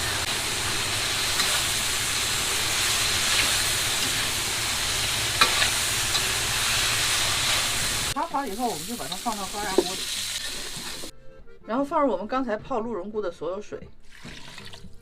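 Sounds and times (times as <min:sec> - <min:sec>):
food sizzling in a pan: 0:00.0 - 0:11.1.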